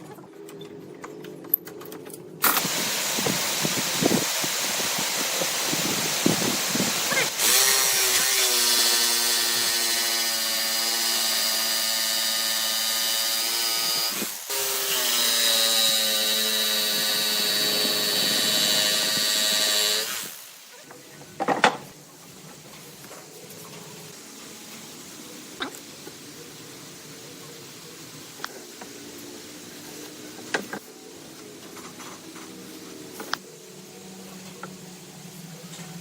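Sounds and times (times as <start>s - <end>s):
broad hiss: 2.4s - 36.0s
power tool motor whine: 6.0s - 20.5s.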